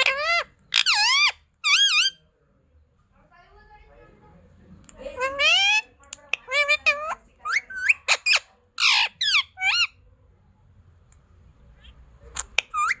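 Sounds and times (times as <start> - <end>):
parrot calling: 0.0 - 2.2, 5.0 - 10.0, 11.8 - 13.0.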